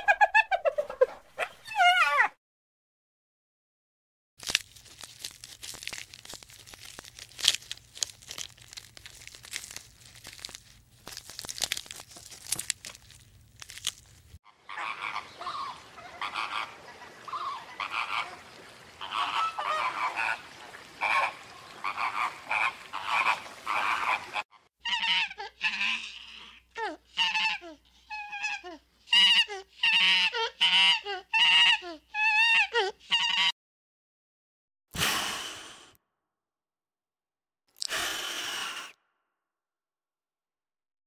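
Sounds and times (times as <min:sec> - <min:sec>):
flamingos honking: 0:14.5 - 0:26.1, 0:29.1 - 0:31.8.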